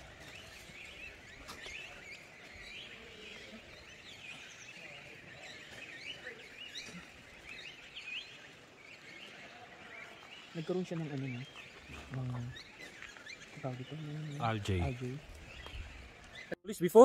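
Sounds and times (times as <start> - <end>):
small birds chirping: 0.0 - 16.6.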